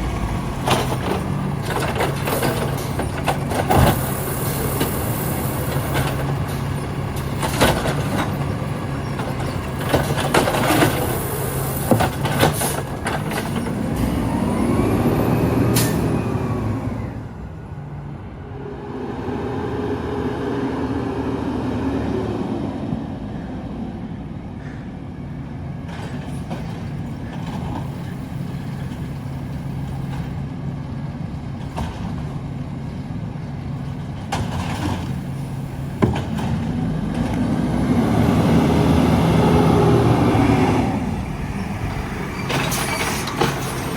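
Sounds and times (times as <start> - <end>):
metal clanks and bangs: 0.0 - 5.0
garbage truck diesel engine revving: 0.0 - 23.3, 27.6 - 43.9.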